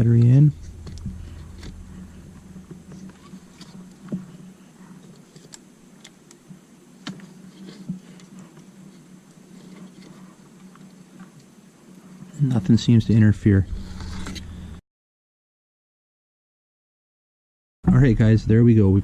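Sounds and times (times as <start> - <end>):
faint steady hum: 0.0 - 14.8, 17.9 - 19.0.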